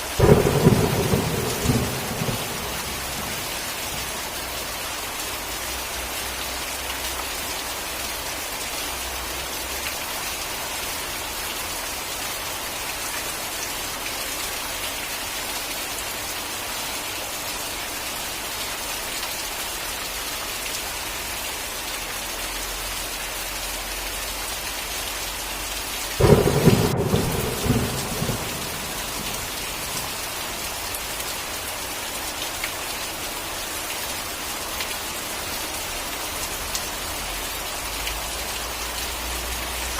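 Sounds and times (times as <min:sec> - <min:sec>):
steady rain: 0:00.0 - 0:39.9
thunder clap and rumble: 0:00.2 - 0:04.1, 0:26.2 - 0:30.3.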